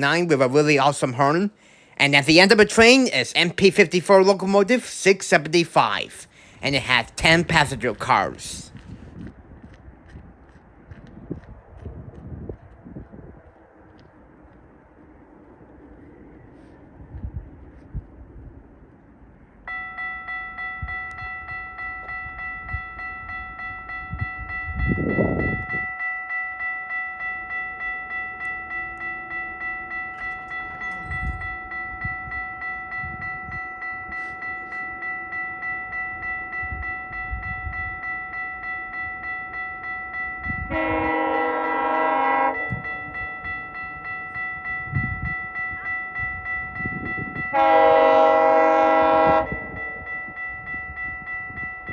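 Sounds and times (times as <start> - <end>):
level crossing warning bell: 0.0 - 8.9, 19.6 - 51.9
train horn blasts: 40.1 - 43.7, 44.3 - 50.2.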